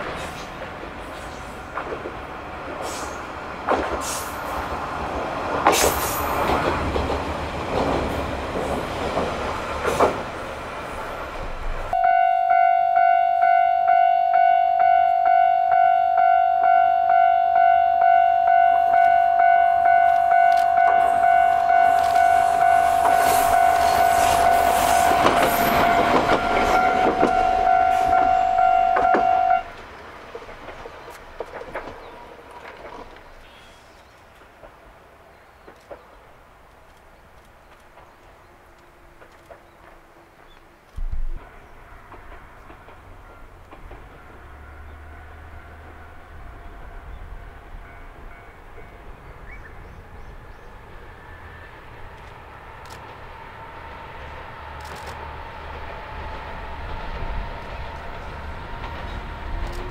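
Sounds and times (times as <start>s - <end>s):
diesel railcar running past: 0.0s - 59.9s
level crossing bell ringing: 12.0s - 22.9s, 26.0s - 29.6s.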